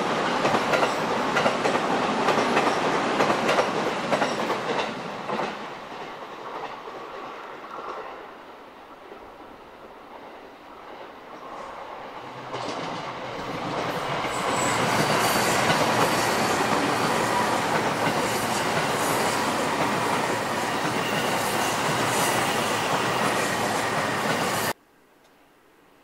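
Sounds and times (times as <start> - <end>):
train wheels clattering over rail joints: 0.3 - 5.6.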